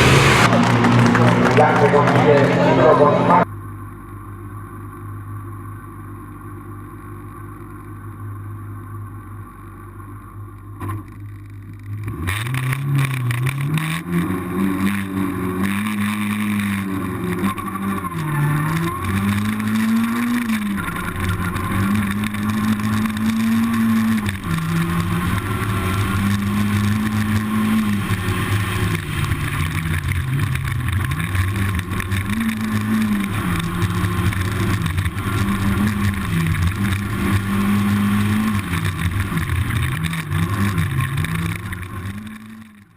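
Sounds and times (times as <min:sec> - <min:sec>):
race car engine revving: 0:00.0 - 0:03.5, 0:12.0 - 0:42.9.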